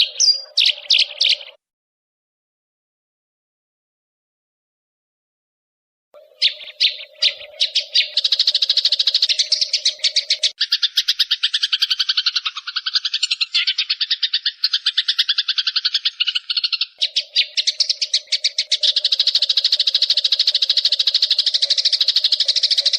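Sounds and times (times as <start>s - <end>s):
sparrows chirping agitatedly: 0.0s - 1.6s, 6.2s - 22.9s.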